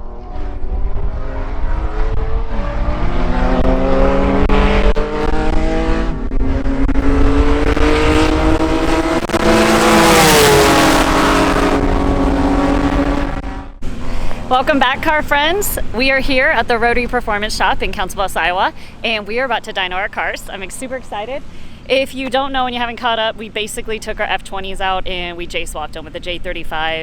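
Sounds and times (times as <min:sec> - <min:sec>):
wind noise rushing: 0:00.0 - 0:14.5
race car engine at full throttle: 0:00.0 - 0:16.0.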